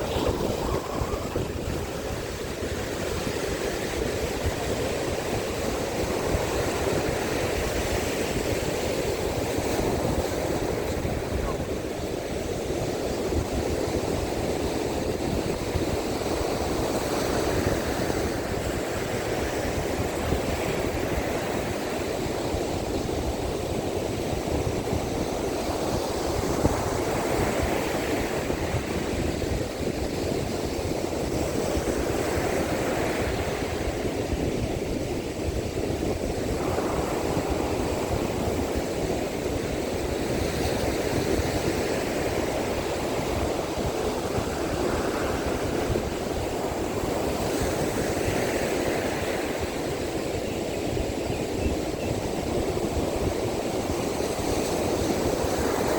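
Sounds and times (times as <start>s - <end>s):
surf breaking on beach: 0.0s - 23.4s
wind buffeting microphone: 0.0s - 55.9s.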